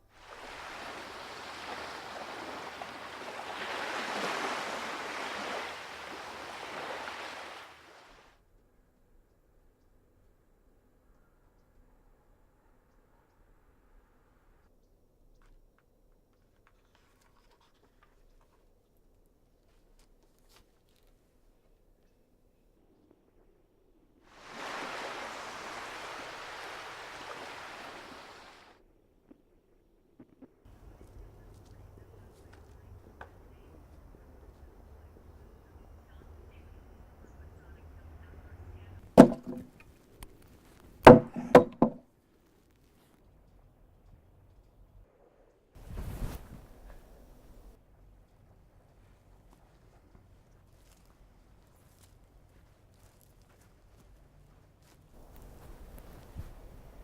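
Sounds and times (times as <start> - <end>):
sea surf washing: 0.0 - 8.3, 24.3 - 28.7, 39.2 - 39.7.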